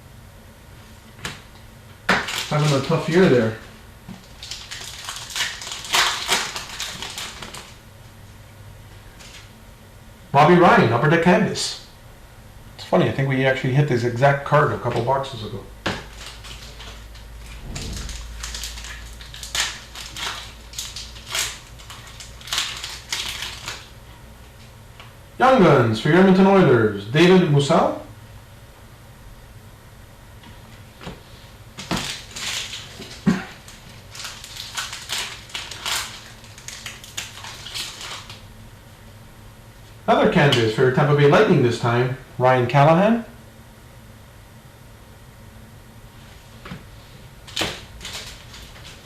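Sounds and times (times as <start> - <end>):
cards rustling: 2.1 - 3.6
wrappers crinkling: 2.2 - 7.8, 16.0 - 24.0, 31.8 - 38.4, 47.4 - 49.0.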